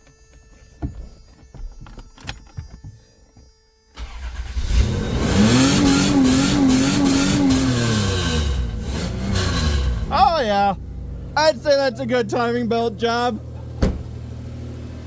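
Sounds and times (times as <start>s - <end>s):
car engine starting and revving: 4.0s - 11.5s, 13.4s - 15.0s.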